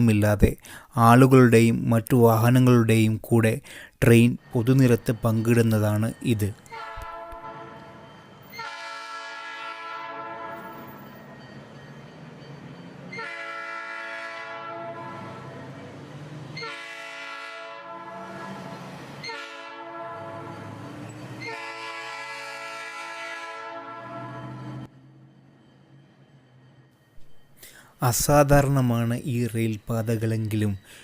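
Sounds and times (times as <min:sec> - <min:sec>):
train horn blasts: 0:06.7 - 0:10.9, 0:13.1 - 0:15.6, 0:16.5 - 0:20.8, 0:21.4 - 0:24.9.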